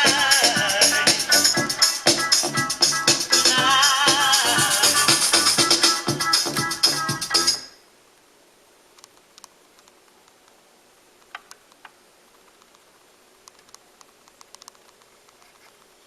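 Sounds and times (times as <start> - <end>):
faint steady hiss: 0.0 - 16.0
turntable clicks and ticks: 13.4 - 15.9.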